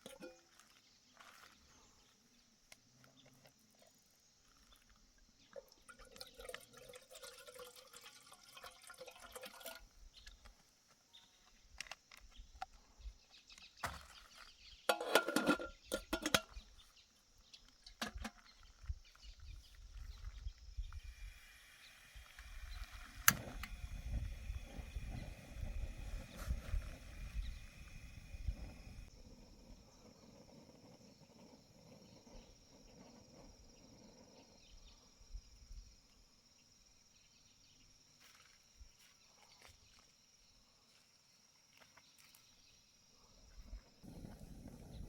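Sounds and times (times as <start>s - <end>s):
liquid pouring: 5.5s - 9.9s.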